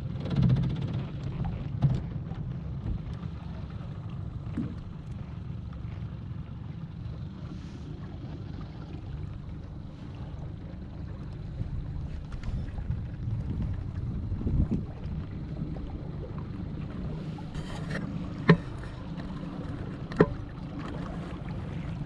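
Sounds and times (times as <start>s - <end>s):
motorboat engine rumble: 0.0s - 22.0s
wind buffeting microphone: 11.4s - 16.4s.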